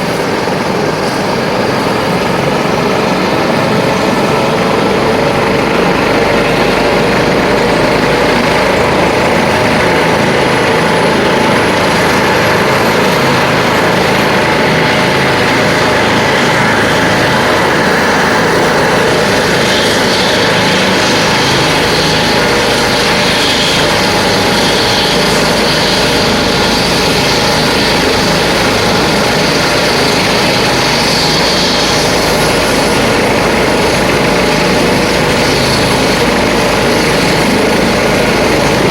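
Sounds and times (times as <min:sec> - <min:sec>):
helicopter engines and rotor: 0:00.0 - 0:38.9
high turbine whine: 0:00.0 - 0:38.9.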